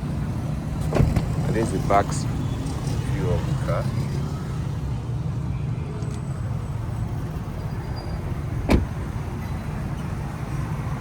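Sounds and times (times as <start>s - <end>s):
sharp thump: 8.7s - 9.0s.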